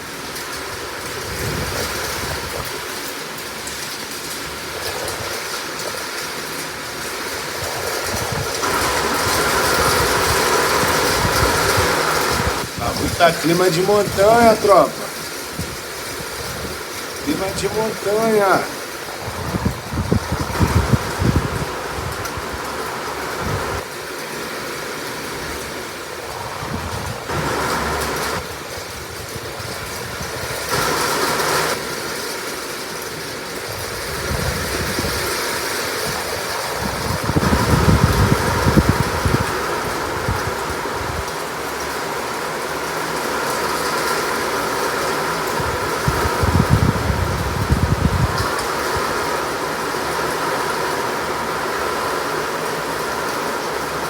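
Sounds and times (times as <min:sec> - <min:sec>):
heavy rain: 0:00.0 - 0:54.0
wind buffeting microphone: 0:07.4 - 0:14.6, 0:15.2 - 0:17.9, 0:18.8 - 0:23.8, 0:26.2 - 0:31.0, 0:33.7 - 0:41.3, 0:45.5 - 0:49.4.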